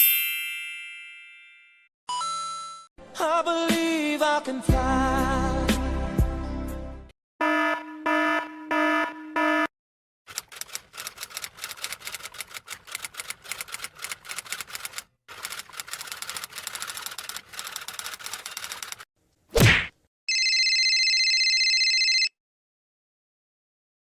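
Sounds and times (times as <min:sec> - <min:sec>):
typewriter typing: 0:10.3 - 0:19.1.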